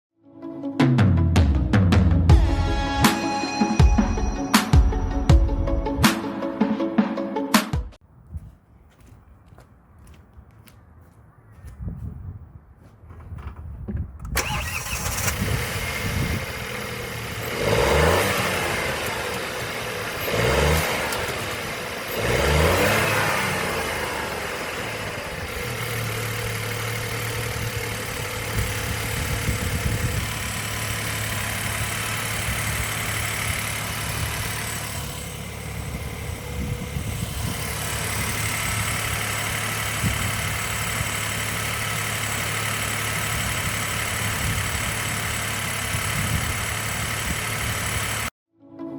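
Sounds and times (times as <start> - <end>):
car engine revving and idling: 14.4 - 48.3.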